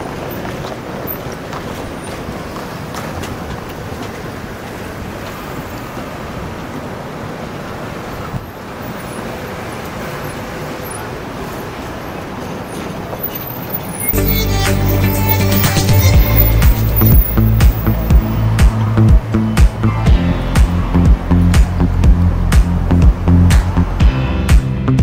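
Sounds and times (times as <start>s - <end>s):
train wagons rolling on rails: 0.0s - 19.4s
cars driving over level crossing: 0.0s - 24.4s.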